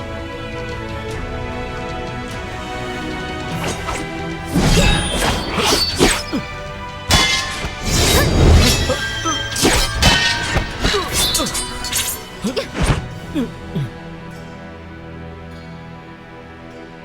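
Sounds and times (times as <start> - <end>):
dramatic music: 0.0 - 16.6
swords clashing: 3.5 - 13.2.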